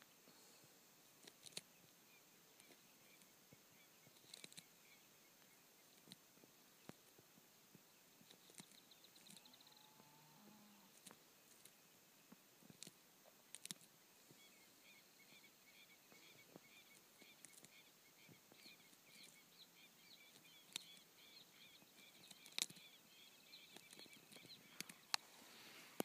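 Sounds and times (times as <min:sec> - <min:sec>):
sharp clicks: 0:22.1 - 0:22.8.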